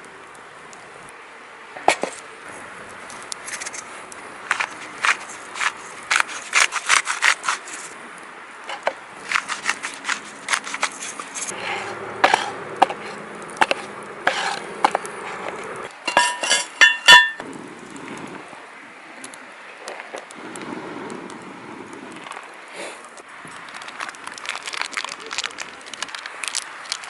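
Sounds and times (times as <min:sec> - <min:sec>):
metal clinks ringing: 0:16.1 - 0:17.4.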